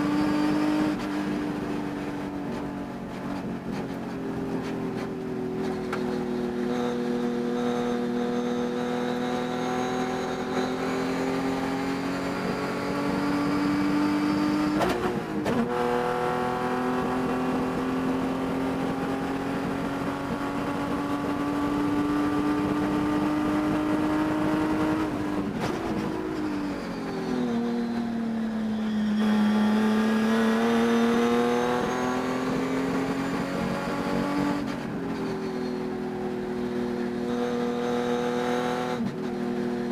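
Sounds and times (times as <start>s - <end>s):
race car engine revving: 28.8s - 34.8s.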